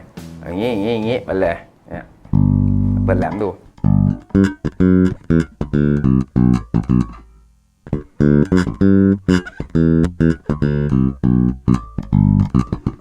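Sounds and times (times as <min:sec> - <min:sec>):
electric bass short clipped notes: 0:02.3 - 0:07.3, 0:07.9 - 0:13.0.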